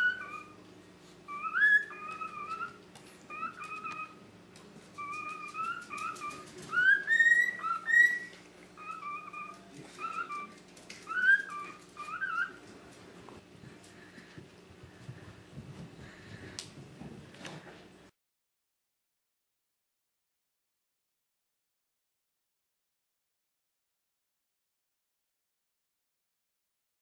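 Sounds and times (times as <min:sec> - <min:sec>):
cockatiel whistling: 0:00.0 - 0:00.6, 0:01.3 - 0:04.2, 0:05.0 - 0:12.6.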